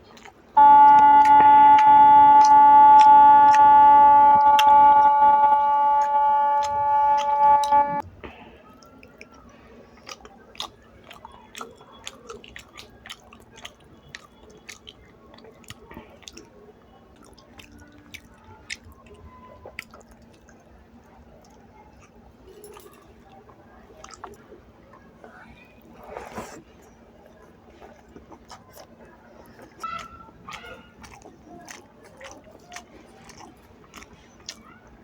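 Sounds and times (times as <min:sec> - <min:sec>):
person chewing food: 0:00.0 - 0:04.8, 0:08.8 - 0:20.7, 0:24.0 - 0:24.5, 0:25.4 - 0:35.0
loud held tone: 0:00.6 - 0:08.0.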